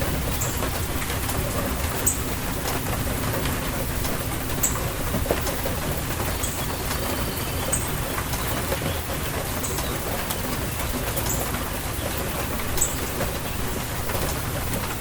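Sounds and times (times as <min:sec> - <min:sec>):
steady rainfall hissing: 0:00.0 - 0:15.0
bird chirping: 0:06.2 - 0:09.0.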